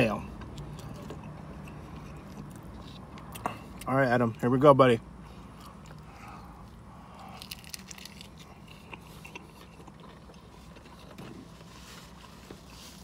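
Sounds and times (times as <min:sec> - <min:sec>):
biting and crunching sandwich: 0:05.5 - 0:12.8.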